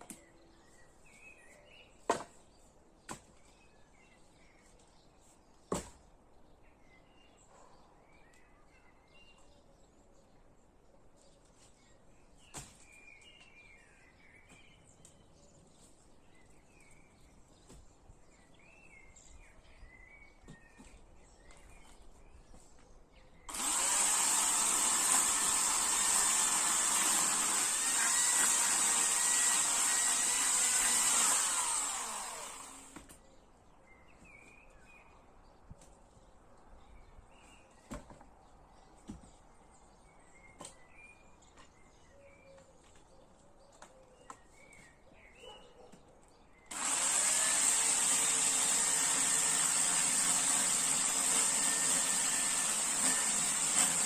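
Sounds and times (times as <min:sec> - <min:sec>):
birds chirping: 0:00.0 - 0:54.0
chainsaw running: 0:23.5 - 0:33.1, 0:46.7 - 0:54.0.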